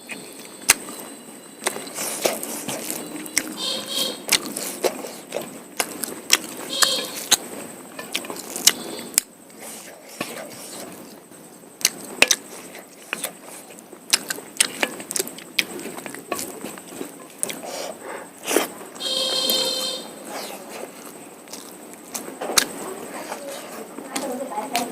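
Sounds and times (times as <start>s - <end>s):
chewing and mouth smacks: 0.1s - 3.6s, 4.3s - 9.3s, 11.8s - 17.9s, 20.4s - 22.8s
bones crunching: 0.1s - 9.3s, 11.8s - 17.9s, 18.5s - 24.9s
brief pitched tone: 2.9s - 4.2s, 6.7s - 7.2s, 19.0s - 20.2s.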